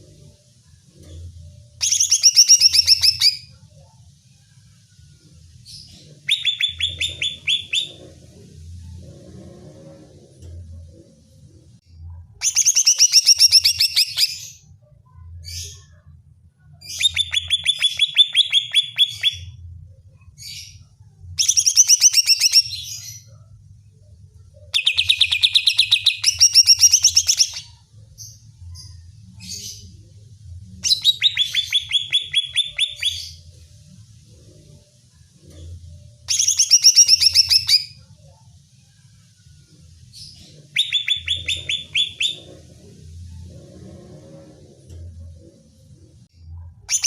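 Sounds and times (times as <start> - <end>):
bird singing rapid high notes: 40.7 - 42.5.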